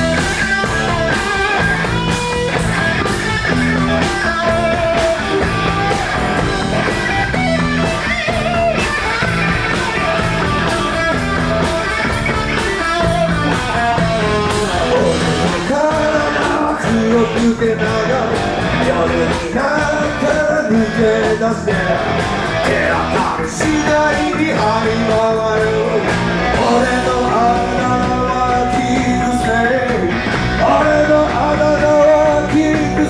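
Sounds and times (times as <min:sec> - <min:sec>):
bass guitar: 0:00.0 - 0:33.0
drum kit: 0:00.0 - 0:33.0
electric guitar riff: 0:00.0 - 0:33.0.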